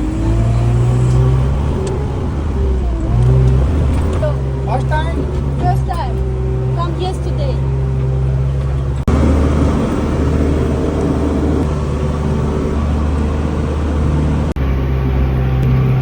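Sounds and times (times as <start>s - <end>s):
tractor engine droning: 0.0s - 16.0s
rattling noise: 0.9s - 13.1s.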